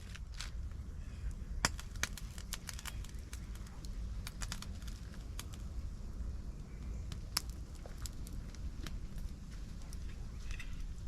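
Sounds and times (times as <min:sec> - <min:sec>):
campfire crackling: 0:00.0 - 0:11.0.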